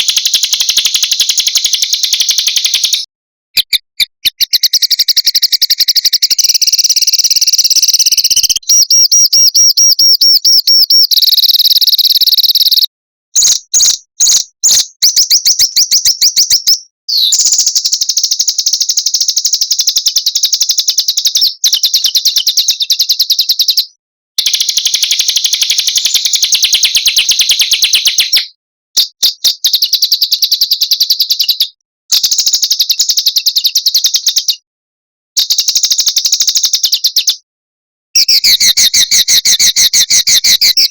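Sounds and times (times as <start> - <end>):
songbird singing rapid trills: 3.7 - 28.6.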